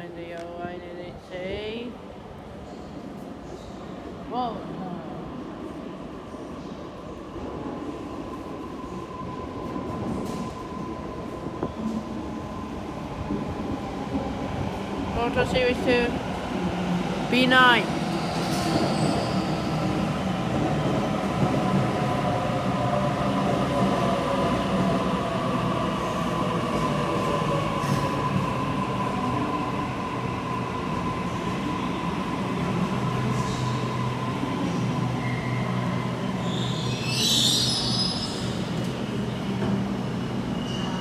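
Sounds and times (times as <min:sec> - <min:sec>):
high squeal: 0:18.2 - 0:19.9, 0:36.3 - 0:38.7.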